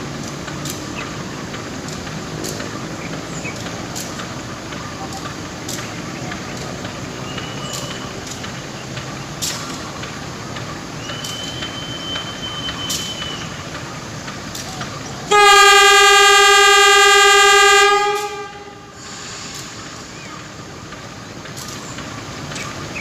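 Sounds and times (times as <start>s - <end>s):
train running: 0.0s - 23.0s
train horn blast: 15.3s - 19.0s.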